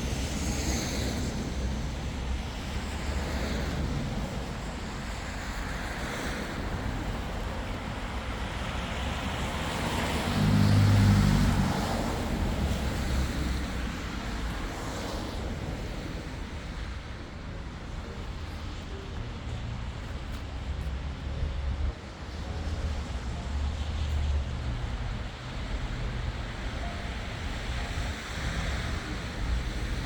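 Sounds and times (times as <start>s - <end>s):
passing cars: 0.0s - 30.0s
vehicle engine hum passing close: 9.4s - 13.8s.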